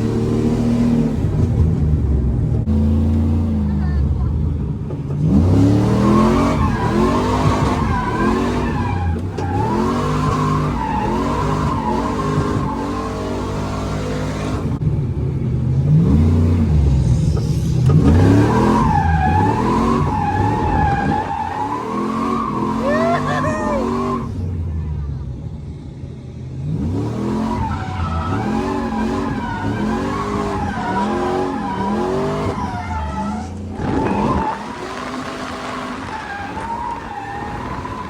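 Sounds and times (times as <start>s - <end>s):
car engine revving: 0.0s - 24.9s, 25.8s - 38.0s
tyres squealing: 18.5s - 24.3s.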